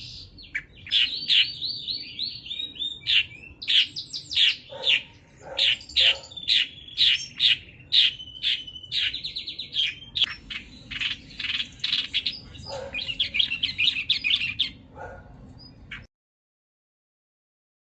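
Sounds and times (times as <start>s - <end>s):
bird chirping and trilling: 0.0s - 16.1s.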